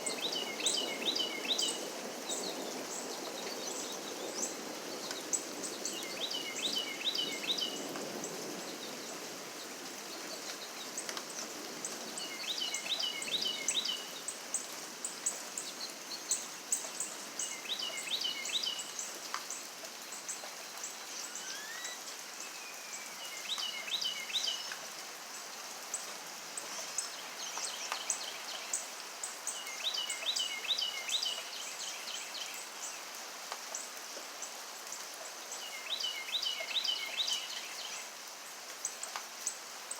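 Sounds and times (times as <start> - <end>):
steady rain: 0.0 - 39.9
high bird chirps: 21.2 - 22.0.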